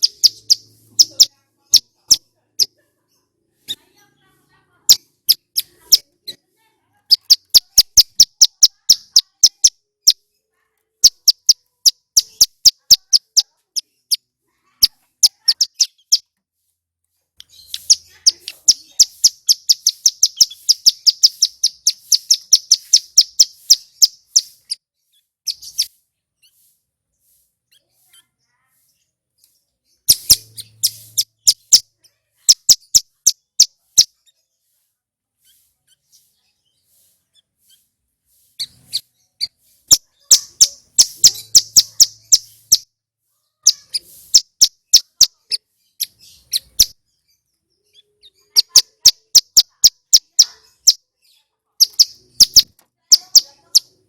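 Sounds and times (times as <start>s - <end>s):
bird singing chip notes: 0.0s - 2.7s, 7.1s - 10.2s, 17.4s - 24.9s, 29.9s - 31.9s, 32.5s - 34.2s, 38.6s - 42.9s, 51.8s - 54.0s
bird trill: 0.0s - 2.8s, 7.1s - 10.3s, 11.0s - 16.3s, 17.4s - 26.7s, 29.9s - 34.4s, 38.6s - 42.9s, 43.6s - 54.0s.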